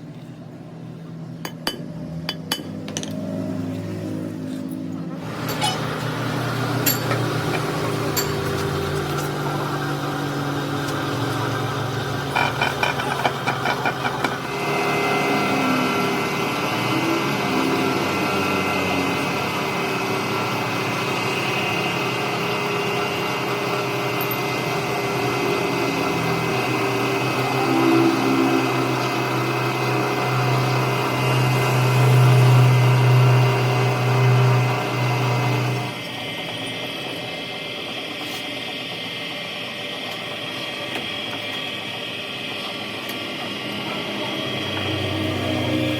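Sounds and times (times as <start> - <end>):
machine running: 5.2 - 45.9
steady whine: 25.4 - 34.4.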